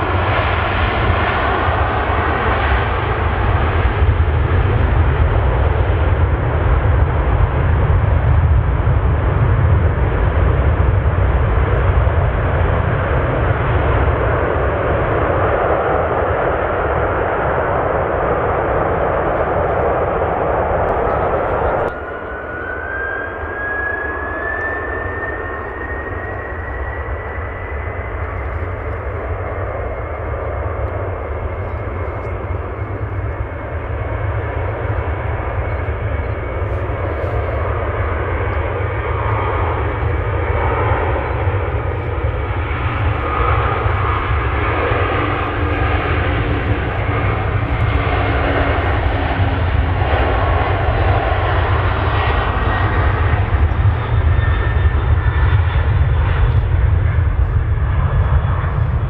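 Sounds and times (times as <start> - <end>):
faint high engine whine: 0.0 - 59.0
jet engines roaring: 0.0 - 59.0.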